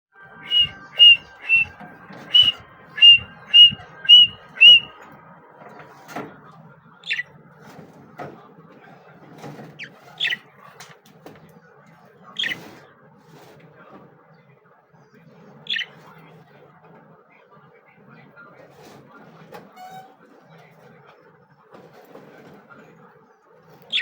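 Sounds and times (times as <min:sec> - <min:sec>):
small parrots chirping: 0:00.4 - 0:01.7, 0:02.3 - 0:04.9.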